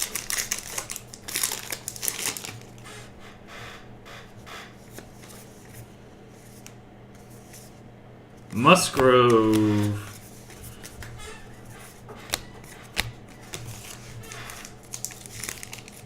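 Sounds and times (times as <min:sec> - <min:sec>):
cards and wrappers rustling: 0:00.0 - 0:02.7, 0:08.6 - 0:10.9, 0:13.4 - 0:16.0
low electrical hum: 0:00.0 - 0:16.0.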